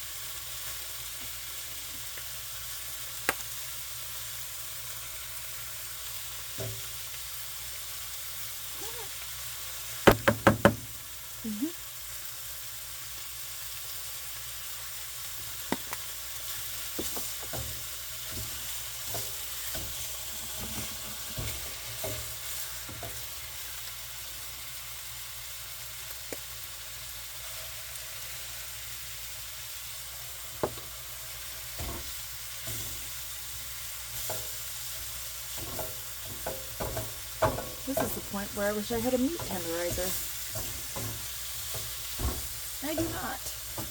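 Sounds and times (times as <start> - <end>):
food sizzling in a frying pan: 0.0 - 43.9
utensils knocking against pan: 17.0 - 22.3, 31.8 - 33.1, 34.2 - 43.9.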